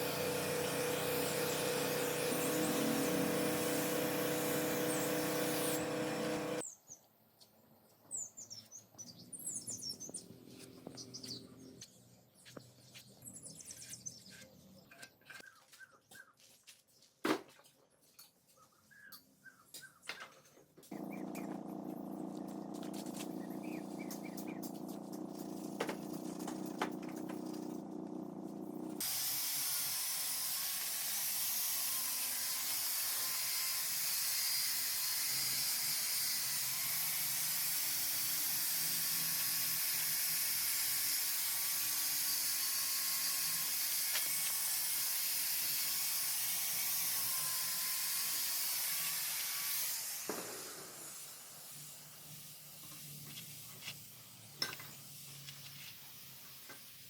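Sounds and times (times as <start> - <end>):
motor humming: 0.0 - 6.6, 20.9 - 29.0.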